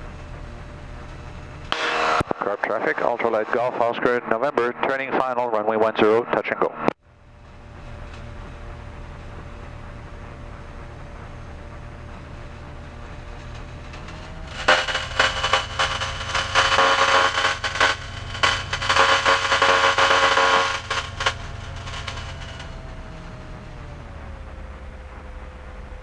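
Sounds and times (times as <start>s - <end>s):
aircraft engine droning: 0.0s - 26.0s
crackly buzzing tone: 0.7s - 3.7s, 7.1s - 24.0s.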